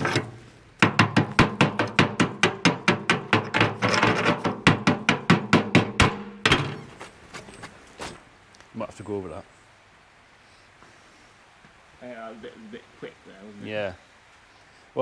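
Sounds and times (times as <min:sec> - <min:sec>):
hammer striking steel: 0:00.0 - 0:06.9.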